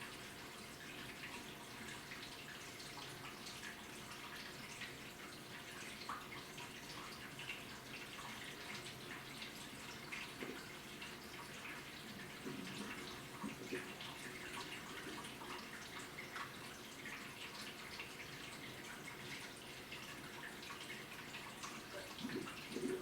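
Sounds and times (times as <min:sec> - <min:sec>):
faint steady hum: 0:00.0 - 0:23.0
water splashing in washing machine: 0:00.1 - 0:23.0.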